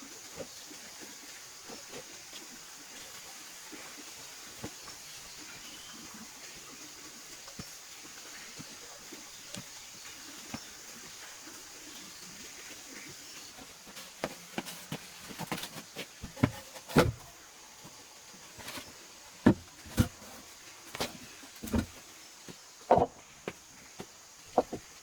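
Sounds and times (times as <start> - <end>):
irregular knocks and taps: 19.4 - 24.9
louder thumps: 22.9 - 23.2.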